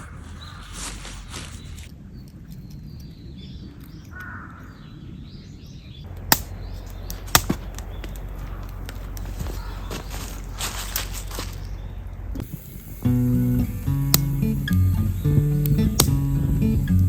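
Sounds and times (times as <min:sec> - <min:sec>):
faint bird calls: 0:00.0 - 0:05.7, 0:06.5 - 0:12.8
sharp cracks: 0:06.1 - 0:13.2, 0:14.0 - 0:17.0
loud hiss: 0:12.4 - 0:17.0.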